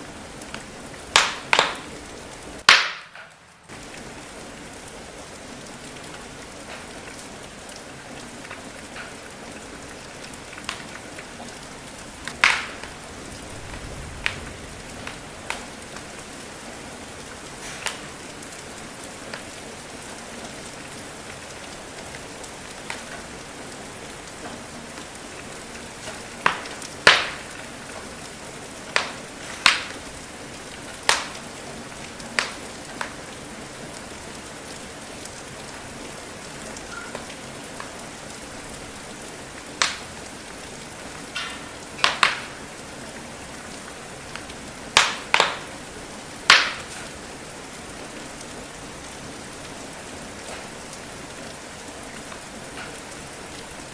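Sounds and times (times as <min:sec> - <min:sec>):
steady rain hiss: 0:00.0 - 0:53.9
wood fire crackling: 0:00.0 - 0:53.9
log pops: 0:00.5 - 0:01.9, 0:02.6 - 0:03.4, 0:12.3 - 0:13.0, 0:26.0 - 0:27.6, 0:28.9 - 0:30.0, 0:31.0 - 0:31.4, 0:32.4 - 0:33.1, 0:39.8 - 0:40.0, 0:41.4 - 0:42.6, 0:45.0 - 0:45.7, 0:46.5 - 0:46.9.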